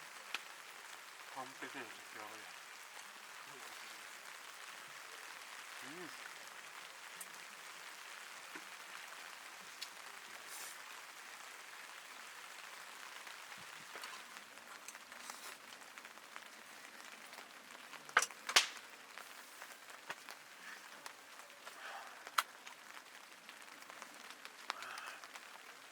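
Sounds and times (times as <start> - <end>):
steady rain falling: 0.0 - 25.9.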